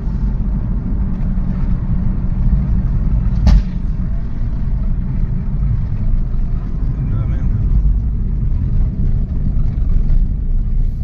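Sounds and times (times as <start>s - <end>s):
car engine and road noise: 0.0s - 11.0s
sharp knock: 3.4s - 3.8s.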